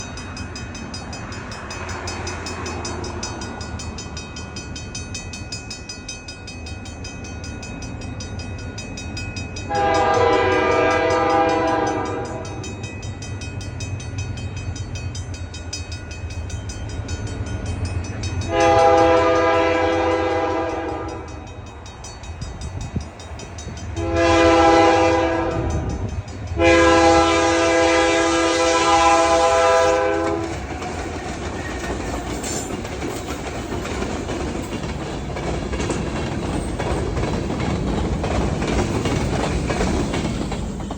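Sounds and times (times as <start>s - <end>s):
crossing bell ringing: 0.0s - 35.0s
locomotive horn blasts: 9.7s - 12.7s, 18.5s - 21.4s, 24.0s - 26.0s, 26.6s - 30.6s.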